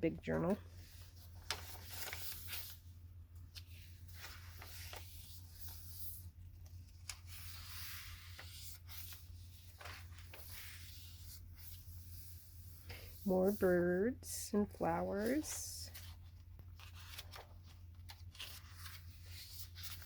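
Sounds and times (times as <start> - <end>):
low steady hum: 0.0 - 20.0
paper pages rustling: 0.4 - 13.6, 15.2 - 20.0.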